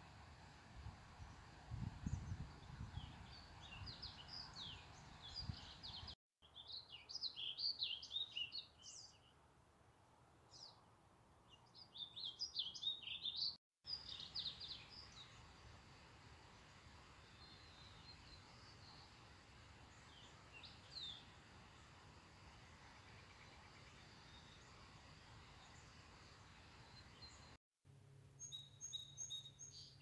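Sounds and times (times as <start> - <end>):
small birds chirping: 2.0 - 9.4, 11.4 - 15.6, 16.5 - 22.0, 28.4 - 30.0.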